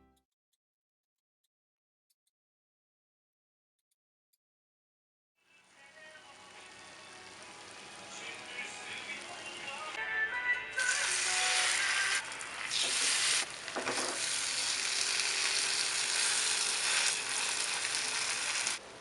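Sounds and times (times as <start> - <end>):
spring rolls sizzling in oil: 10.8 - 18.8.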